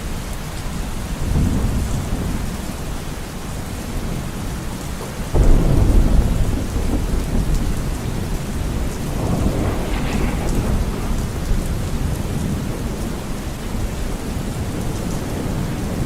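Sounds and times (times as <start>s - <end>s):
steady rain: 0.0s - 16.0s
thunder rumbling: 5.3s - 16.0s.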